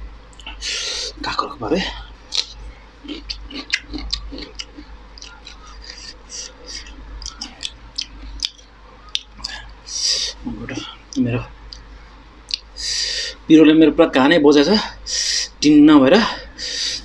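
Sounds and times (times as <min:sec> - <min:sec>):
low steady hum: 0:00.0 - 0:17.0
wet mouth clicks: 0:00.4 - 0:00.6, 0:02.3 - 0:09.6, 0:12.5 - 0:12.7.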